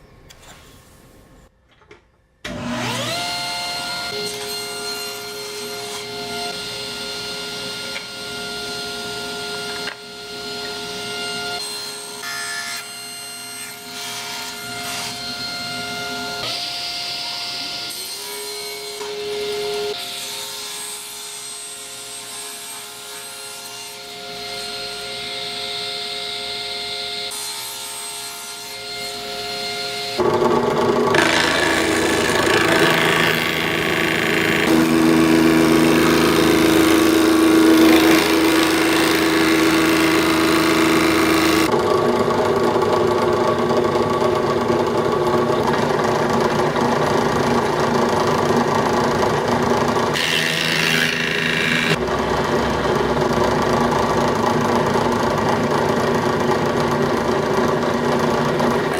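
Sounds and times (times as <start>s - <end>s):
electric power saw whining: 2.4s - 20.3s, 28.8s - 58.9s
saw cutting into wood: 2.5s - 6.6s, 30.1s - 41.8s, 48.9s - 52.0s.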